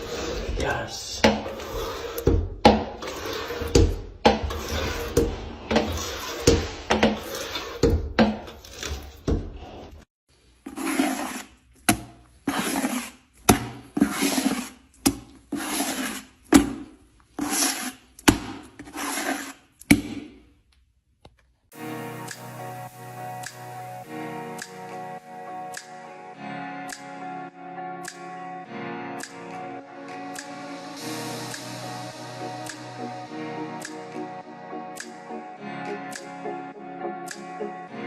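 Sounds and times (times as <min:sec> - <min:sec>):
rubbing and scratching strokes: 0:00.0 - 0:02.3, 0:03.0 - 0:07.9, 0:08.5 - 0:11.7, 0:12.4 - 0:14.9, 0:15.5 - 0:16.4, 0:17.3 - 0:19.8.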